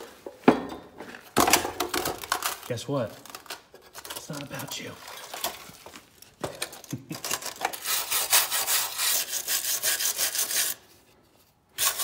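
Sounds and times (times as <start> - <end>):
rhythmic hand scraping strokes: 7.8 - 10.9.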